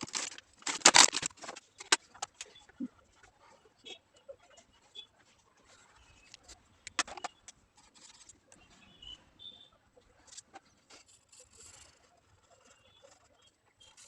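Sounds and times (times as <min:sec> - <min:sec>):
pencil scratching on paper: 0:07.8 - 0:08.4, 0:10.1 - 0:14.0.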